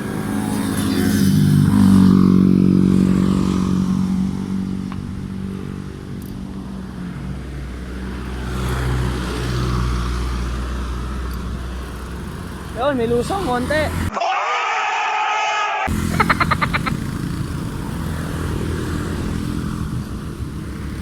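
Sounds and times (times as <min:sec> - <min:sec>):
vehicle engine passing by: 0:00.1 - 0:05.4.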